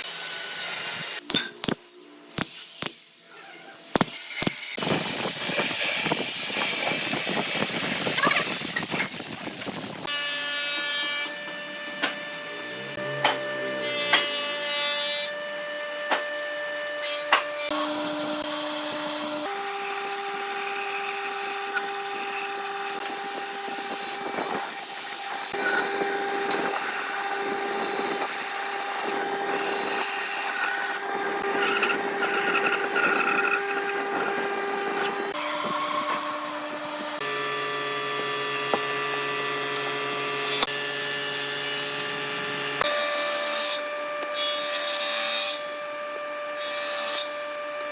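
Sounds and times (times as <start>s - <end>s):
power tool motor whine: 4.2s - 10.2s, 17.7s - 43.0s
tool rasping on wood: 20.8s - 36.4s.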